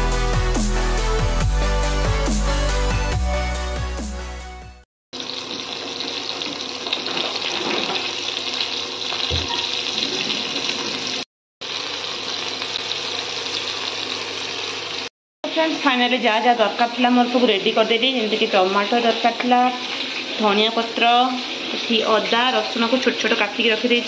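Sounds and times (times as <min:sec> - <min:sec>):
background music: 0:00.0 - 0:04.8
chicken sizzling in oil: 0:05.2 - 0:24.0.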